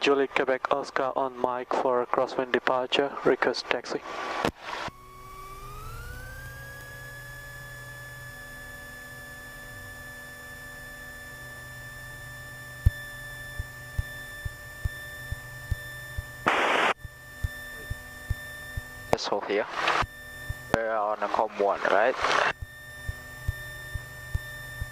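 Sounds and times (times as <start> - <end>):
electrical whine in headset: 0.4 - 24.9
radio hiss: 16.4 - 17.0, 19.2 - 20.0, 20.8 - 22.6.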